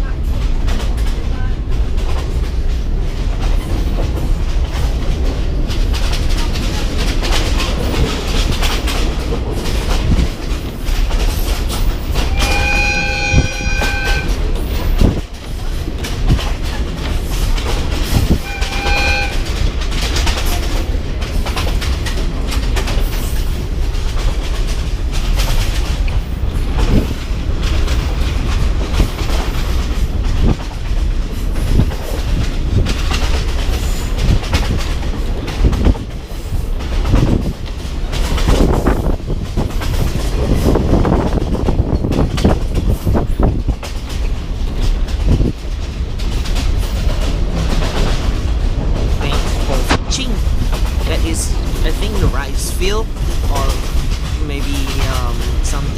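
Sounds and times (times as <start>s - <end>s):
train wheels clacking: 0.0s - 55.9s
train horn blasts: 12.2s - 14.8s, 18.2s - 19.7s.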